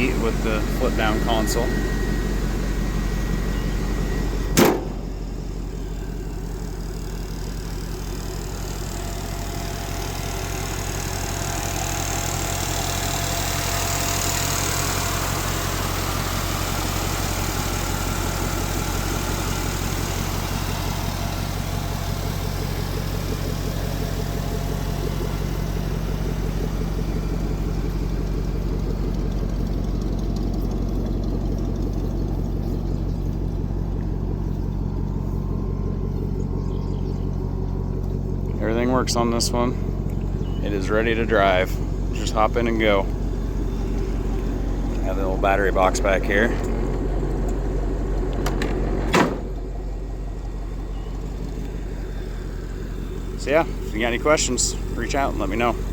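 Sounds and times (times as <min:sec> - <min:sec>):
truck engine idling: 0:00.0 - 0:55.9
sharp thump: 0:04.5 - 0:05.2, 0:48.4 - 0:49.6.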